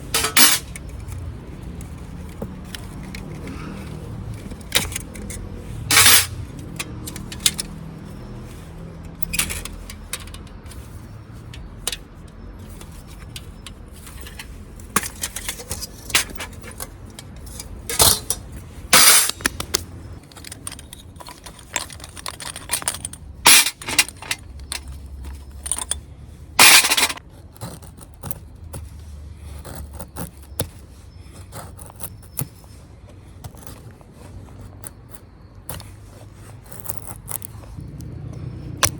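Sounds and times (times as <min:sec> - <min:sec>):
scrapes and rustles: 0:00.0 - 0:38.9
metallic clinks and taps: 0:09.0 - 0:26.0.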